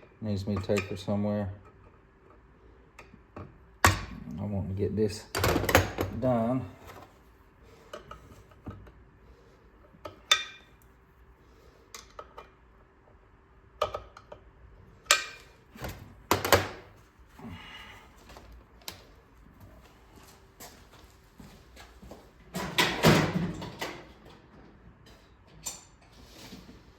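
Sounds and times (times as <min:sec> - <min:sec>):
tools clicking and knocking: 0:13.8 - 0:14.5, 0:15.1 - 0:15.4.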